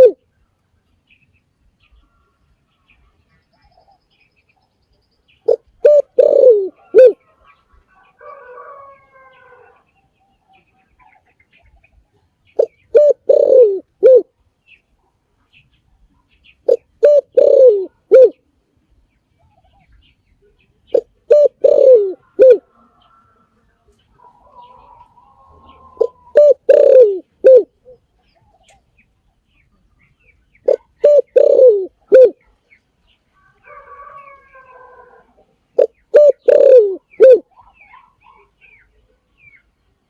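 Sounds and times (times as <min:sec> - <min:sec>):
dove cooing: 0:00.0 - 0:00.2, 0:05.4 - 0:09.9, 0:12.6 - 0:14.3, 0:16.6 - 0:18.4, 0:20.9 - 0:23.4, 0:24.1 - 0:28.8, 0:30.6 - 0:32.6, 0:33.6 - 0:38.8
faint wavering bird call: 0:05.5 - 0:07.2, 0:20.9 - 0:23.5, 0:30.7 - 0:32.5.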